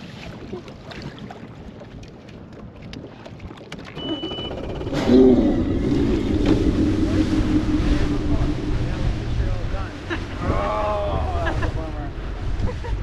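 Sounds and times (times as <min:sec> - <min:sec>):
outboard motor running: 0:00.4 - 0:13.0
short electronic beep: 0:04.0 - 0:05.0.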